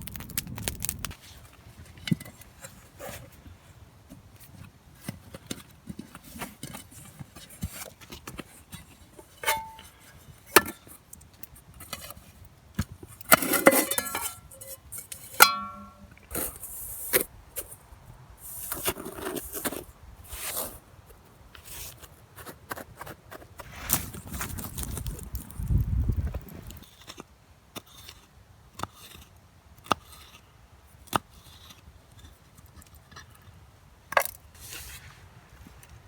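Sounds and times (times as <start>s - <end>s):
rustling: 13.3s - 26.8s.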